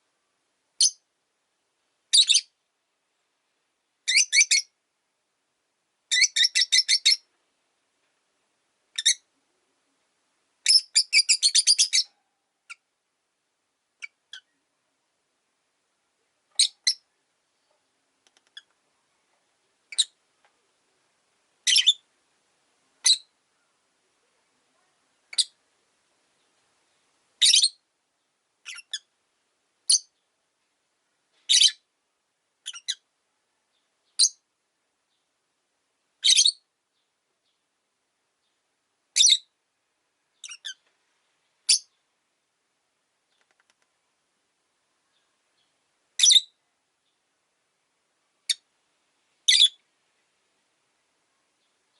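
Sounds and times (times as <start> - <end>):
lovebird chirping: 0.8 - 1.1, 2.1 - 2.6, 4.0 - 4.8, 6.1 - 7.3, 8.9 - 9.3, 10.6 - 12.9, 14.0 - 14.6, 16.5 - 17.8, 19.9 - 20.2, 21.6 - 22.1, 23.0 - 23.8, 25.2 - 25.6, 26.3 - 27.8, 28.6 - 29.1, 29.8 - 30.3, 31.4 - 31.9, 32.6 - 33.1, 33.7 - 34.4, 36.2 - 37.6, 38.4 - 39.6, 40.3 - 40.8, 41.6 - 42.0, 44.9 - 47.2, 48.4 - 48.7, 49.4 - 49.8.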